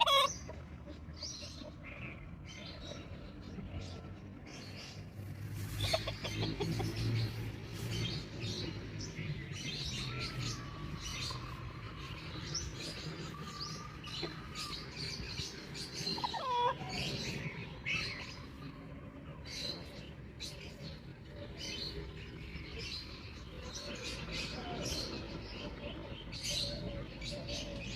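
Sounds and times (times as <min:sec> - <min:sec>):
chicks peeping: 0:00.0 - 0:01.8, 0:05.6 - 0:18.7
hens clucking: 0:00.0 - 0:02.4, 0:05.4 - 0:08.2, 0:13.2 - 0:17.8.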